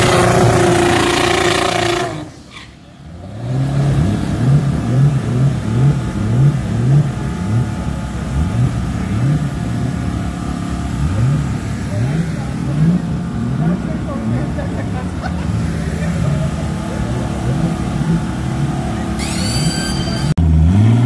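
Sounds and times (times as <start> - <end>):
drag car engine: 0.0 - 21.0
engine revving in short blips: 17.5 - 21.0.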